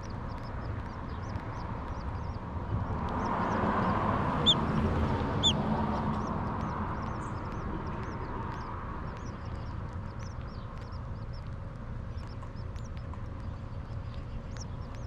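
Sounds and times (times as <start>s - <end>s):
baby birds begging chirps: 0.0s - 15.0s
steady rushing background noise: 0.0s - 15.0s.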